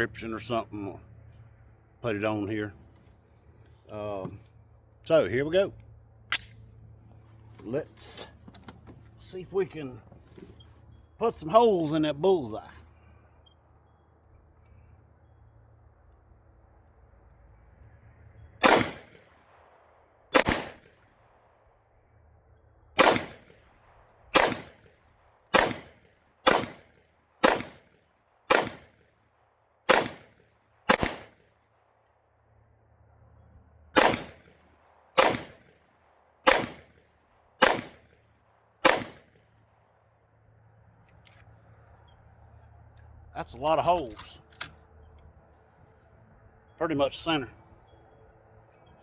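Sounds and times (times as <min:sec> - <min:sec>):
pistol shots: 0:18.6 - 0:19.3, 0:20.3 - 0:21.0, 0:23.0 - 0:23.7, 0:24.3 - 0:24.9, 0:25.5 - 0:29.0, 0:29.8 - 0:31.5, 0:33.9 - 0:34.6, 0:35.2 - 0:35.8, 0:36.4 - 0:37.0, 0:37.6 - 0:38.2, 0:38.8 - 0:39.4.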